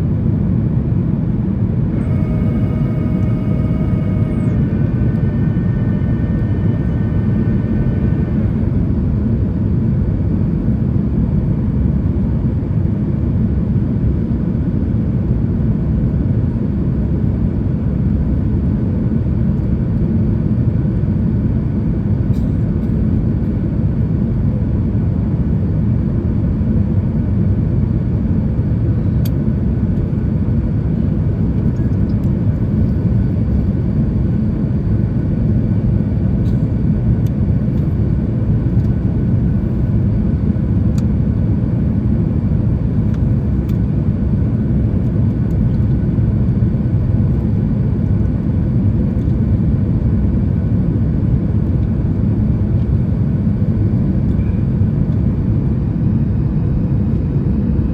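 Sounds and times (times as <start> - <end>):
airplane cabin engine rumble: 0.0 - 57.9
airflow noise: 1.8 - 10.0.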